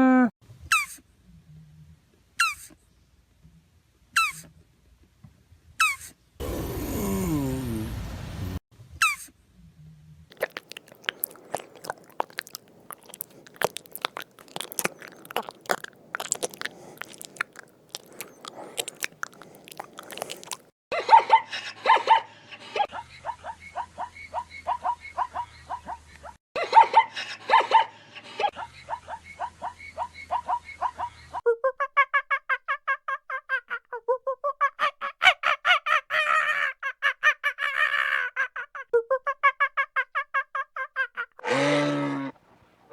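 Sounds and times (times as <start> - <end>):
animal chewing food: 10.3 - 20.7.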